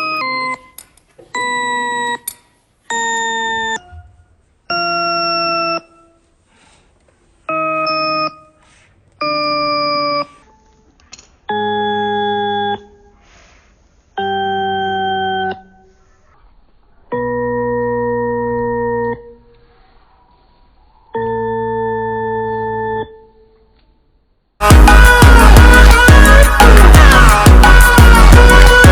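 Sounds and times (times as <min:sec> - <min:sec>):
electronic keyboard tones: 0:02.9 - 0:06.3.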